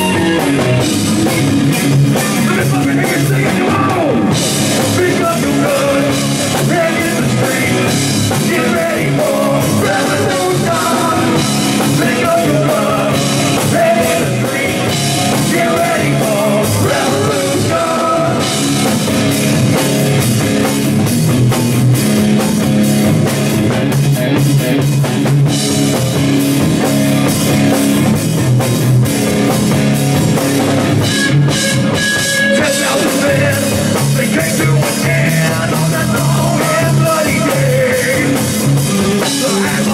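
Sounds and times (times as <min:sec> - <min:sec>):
live rock band playing: 0:00.0 - 0:39.9
person singing: 0:02.2 - 0:18.7, 0:32.2 - 0:39.9.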